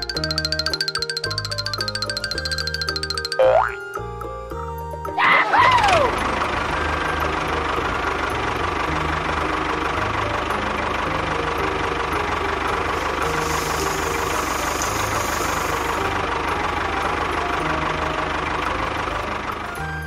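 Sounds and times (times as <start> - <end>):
tractor engine chugging: 0.0 - 3.7, 5.6 - 20.0
sand pouring: 13.0 - 16.0.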